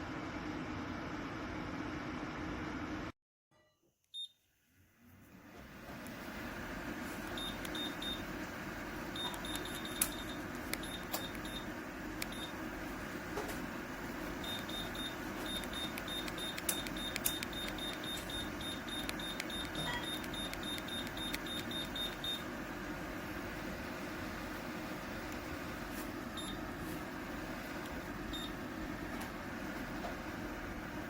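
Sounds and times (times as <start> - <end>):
fan heater running: 0.0 - 3.1, 4.7 - 31.0
sharp clicks: 15.6 - 22.2.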